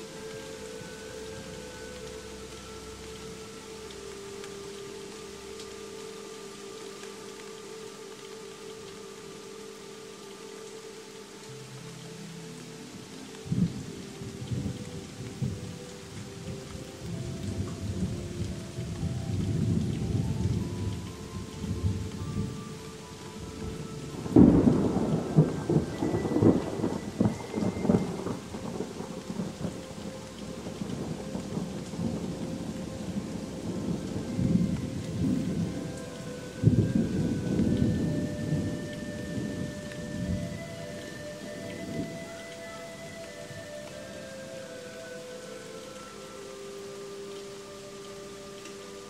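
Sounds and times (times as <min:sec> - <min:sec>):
steady rain: 0:00.0 - 0:49.0
rolling thunder: 0:23.6 - 0:42.3
sharp crack of thunder: 0:24.2 - 0:29.8.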